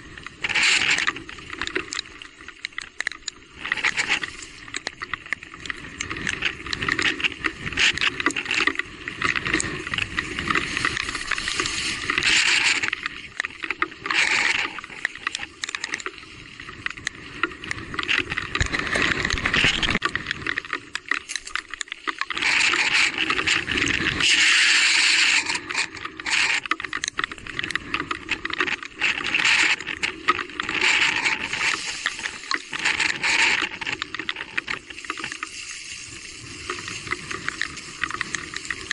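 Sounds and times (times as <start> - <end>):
bike tyres rolling on wet trail: 0.0 - 38.9
bike rattling and knocking: 17.8 - 20.6.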